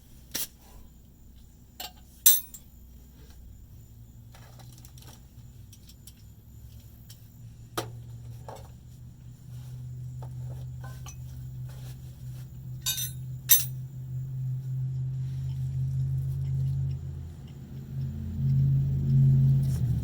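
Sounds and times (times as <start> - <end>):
low steady hum: 0.0 - 20.0
metal tools clinking: 1.8 - 2.7, 12.8 - 13.8.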